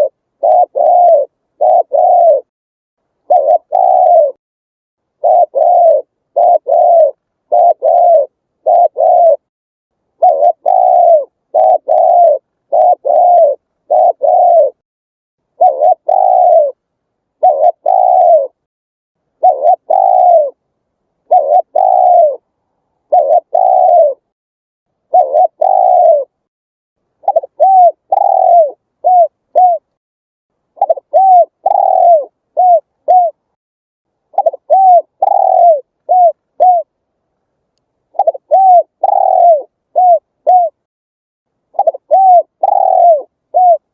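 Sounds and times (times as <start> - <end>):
dove cooing: 0.0 - 2.5, 3.2 - 4.4, 5.2 - 9.5, 10.2 - 14.8, 15.6 - 16.8, 17.4 - 18.6, 19.4 - 20.6, 21.2 - 24.3, 25.0 - 26.4, 27.2 - 30.0, 30.8 - 33.4, 34.3 - 37.0, 38.1 - 40.9, 41.8 - 43.9.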